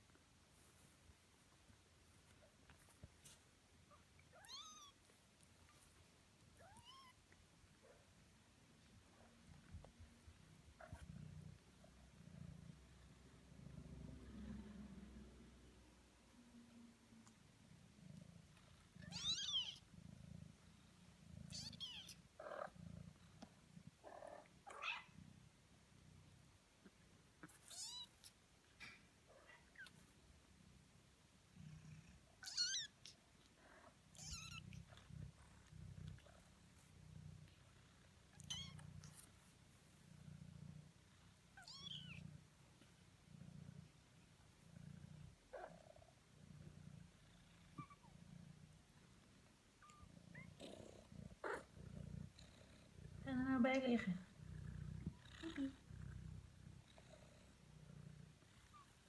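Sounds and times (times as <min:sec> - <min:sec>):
kitten purring: 0:00.0 - 0:59.0.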